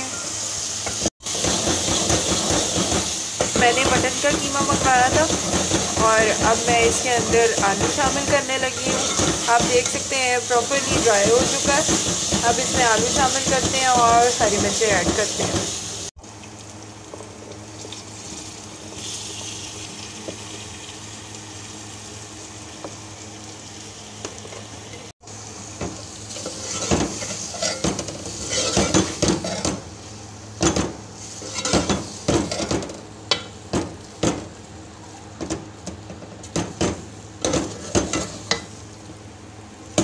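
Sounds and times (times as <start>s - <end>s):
food sizzling in oil: 0.0s - 35.3s, 36.4s - 40.0s
spoon scraping a pot: 4.6s - 10.0s, 26.3s - 29.7s, 31.4s - 33.4s.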